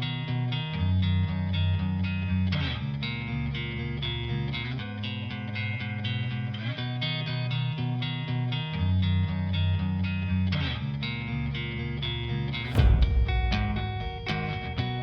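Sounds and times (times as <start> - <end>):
strummed guitar music with beat: 0.0 - 15.0
loud crash: 12.6 - 15.0.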